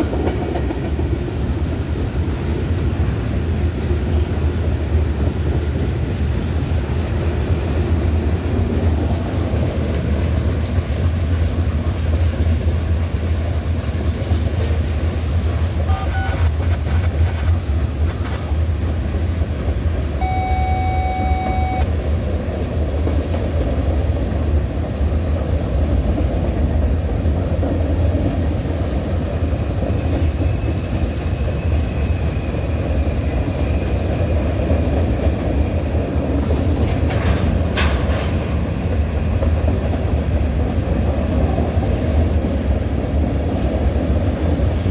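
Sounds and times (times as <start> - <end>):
train wheels clattering on rails: 0.0 - 44.9
short steady tone: 20.2 - 21.9.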